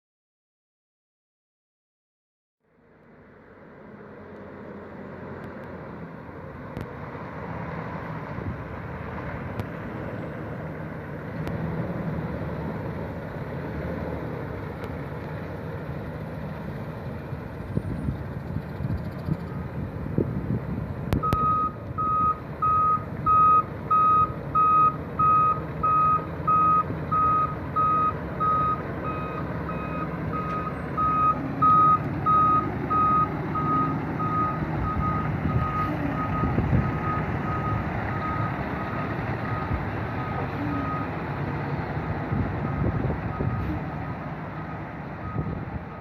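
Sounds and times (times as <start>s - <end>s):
diesel truck engine running: 2.6s - 46.0s
back-up alarm beeping: 21.2s - 41.1s.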